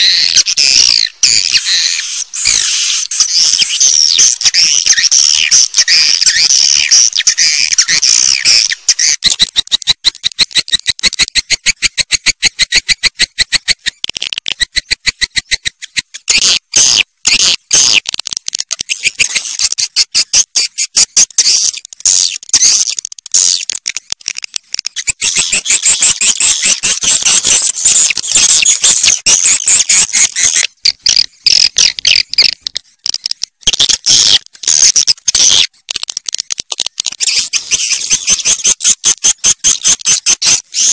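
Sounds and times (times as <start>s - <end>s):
swiftlet twittering chirps: 0.0s - 9.8s, 25.0s - 32.5s, 37.2s - 40.9s.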